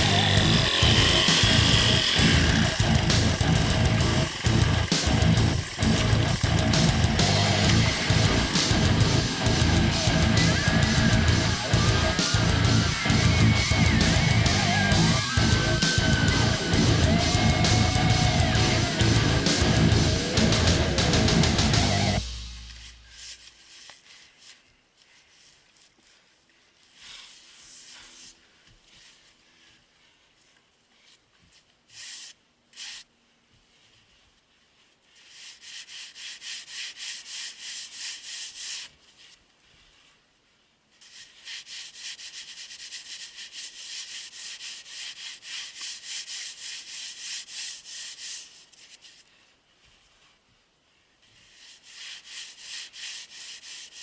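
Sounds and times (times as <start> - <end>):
rhythmic scraping strokes: 0.0 - 24.0.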